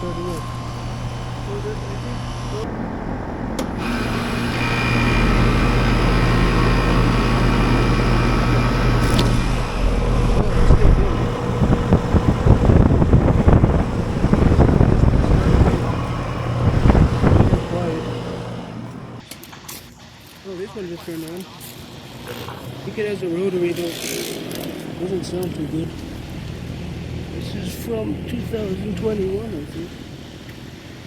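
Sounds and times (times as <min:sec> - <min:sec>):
air conditioner compressor and fan hum: 0:00.0 - 0:31.0
gusty noise: 0:08.6 - 0:19.2.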